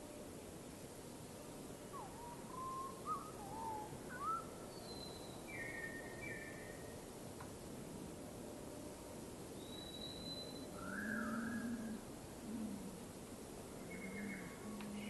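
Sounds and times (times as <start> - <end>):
steady background hiss: 0.0 - 15.0
birds whistling: 2.0 - 6.8, 9.6 - 12.0.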